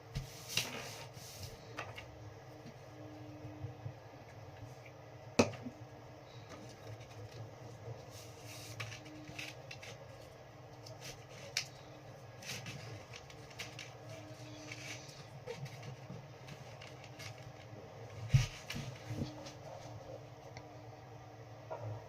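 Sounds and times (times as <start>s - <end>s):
paper crinkling and rustling: 6.3s - 20.0s.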